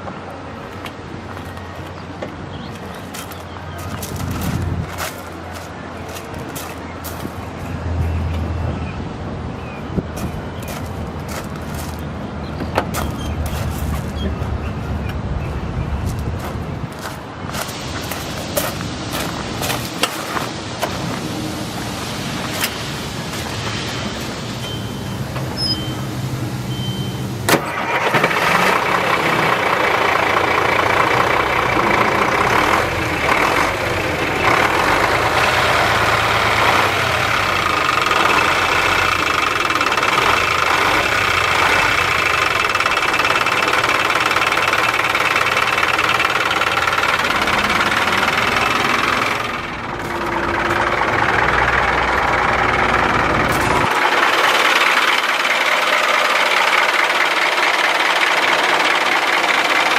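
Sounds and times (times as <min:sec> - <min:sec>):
diesel engine starting and idling: 0:17.6 - 0:59.9.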